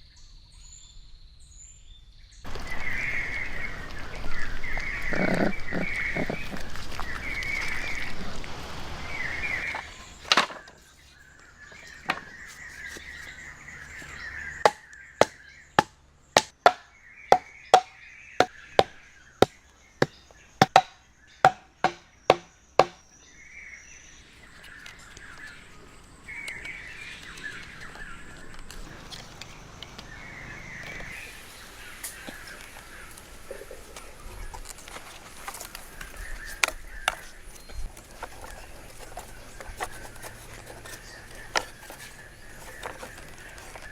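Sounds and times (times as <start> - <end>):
sharp ringing knocks: 14.7 - 19.6, 20.6 - 23.0.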